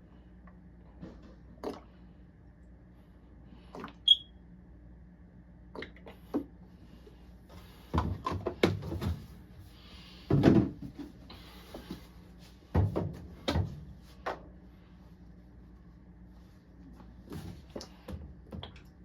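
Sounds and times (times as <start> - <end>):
short electronic beep: 4.1 - 4.3
knocks and clatter of laundry handling: 7.6 - 9.4, 10.2 - 14.5.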